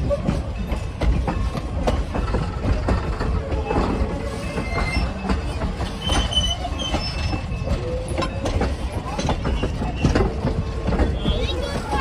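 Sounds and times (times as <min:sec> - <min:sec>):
train rumbling along track: 0:00.0 - 0:12.0
wheels clicking over rails: 0:00.0 - 0:12.0
high wheel squeals: 0:02.5 - 0:12.0.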